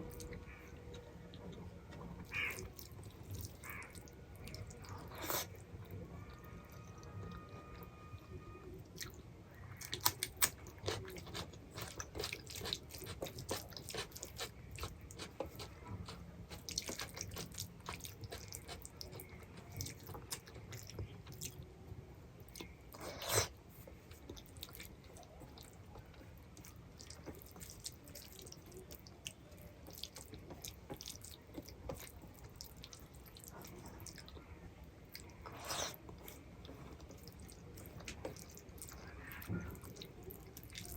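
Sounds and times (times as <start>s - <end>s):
person chewing food: 0.0s - 7.9s, 8.9s - 21.6s, 22.4s - 40.9s.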